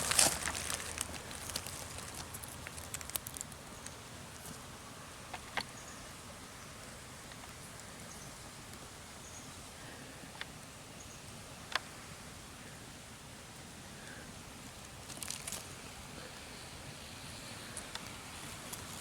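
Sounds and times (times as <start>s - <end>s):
dry leaves and twigs crackling: 0.0s - 4.6s, 14.6s - 16.0s
faint outdoor hiss: 0.0s - 19.0s.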